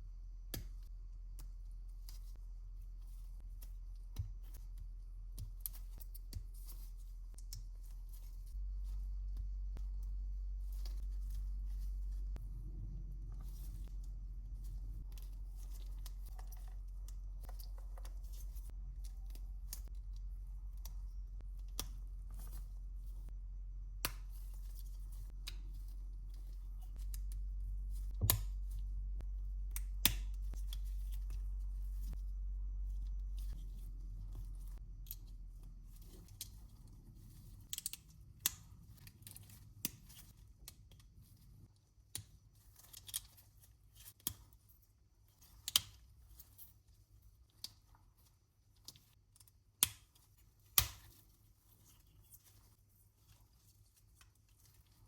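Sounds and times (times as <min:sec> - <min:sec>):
low steady hum: 0:00.0 - 0:40.2.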